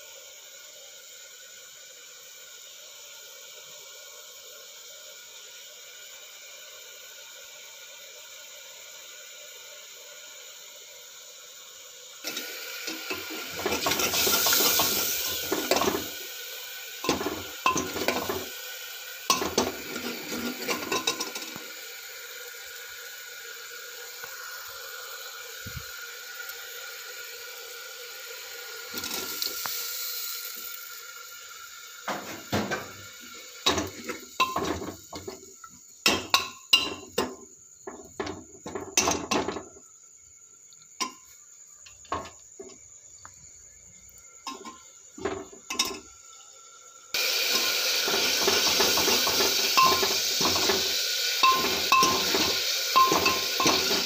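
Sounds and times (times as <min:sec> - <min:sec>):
loud hissing noise: 0:00.0 - 0:38.6, 0:47.0 - 0:54.0
pots and metal utensils clattering: 0:12.2 - 0:16.2, 0:17.0 - 0:18.6, 0:19.3 - 0:21.6, 0:32.1 - 0:35.4, 0:36.0 - 0:39.7, 0:44.5 - 0:46.0, 0:47.2 - 0:54.0.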